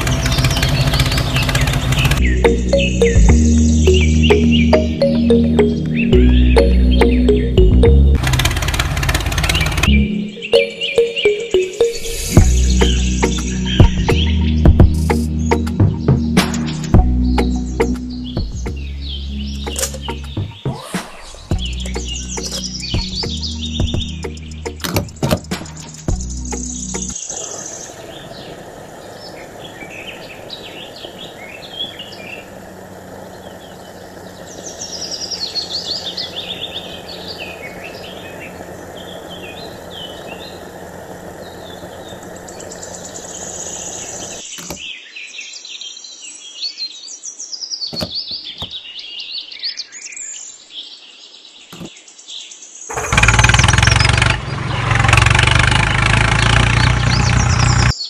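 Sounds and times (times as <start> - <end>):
birds chirping and twittering: 0.0 - 58.0
steady mechanical hum: 26.4 - 44.8.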